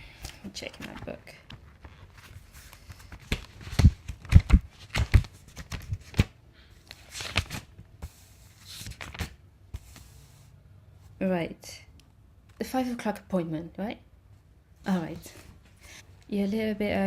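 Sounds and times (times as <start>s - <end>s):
book pages flipping: 0.2s - 10.4s.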